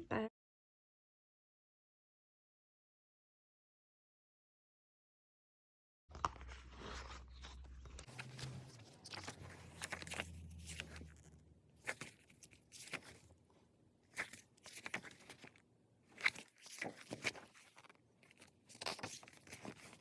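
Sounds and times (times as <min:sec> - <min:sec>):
paper and card rustling: 0:06.1 - 0:13.4, 0:14.0 - 0:20.0.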